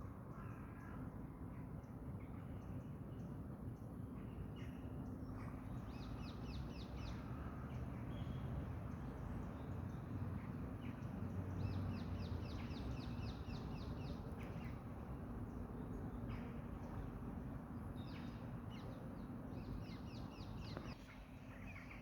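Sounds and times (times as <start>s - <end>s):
songbird singing: 11.6s - 14.9s, 17.9s - 21.0s.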